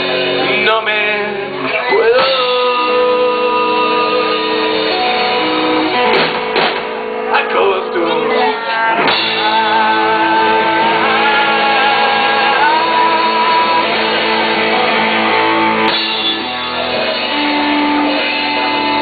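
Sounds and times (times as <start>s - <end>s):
rock band playing: 0.0s - 19.0s
sliding lead guitar line: 0.0s - 19.0s.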